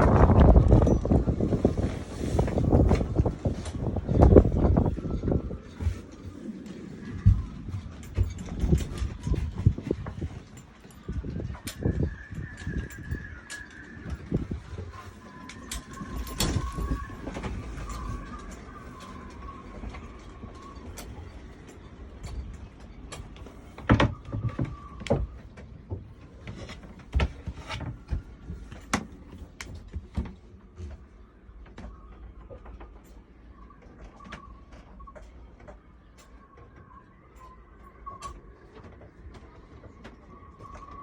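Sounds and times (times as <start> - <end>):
low rumble of wind: 0.0 - 41.0
sailboat rigging knocking and clicking: 0.0 - 41.0
faint high whistle: 11.6 - 20.8.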